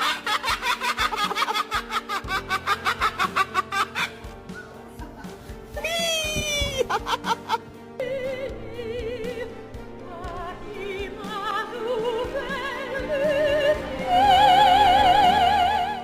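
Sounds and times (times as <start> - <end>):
operatic singing: 6.8 - 16.0.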